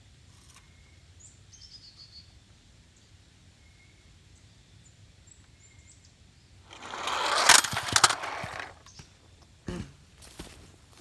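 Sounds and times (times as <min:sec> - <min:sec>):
toy truck motor whir and rattle: 0:06.7 - 0:08.9.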